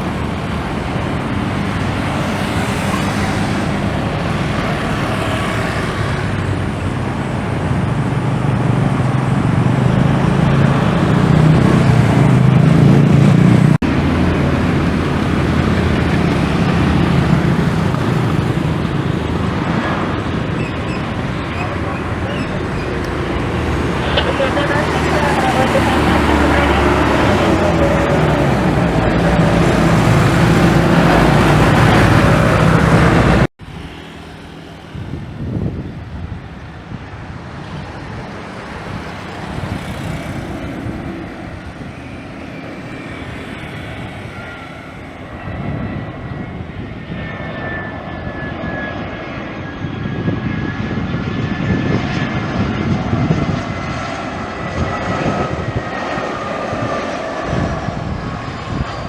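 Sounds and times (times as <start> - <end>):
loud dense noise: 0.0 - 37.4
jet engine rumble: 0.0 - 59.0.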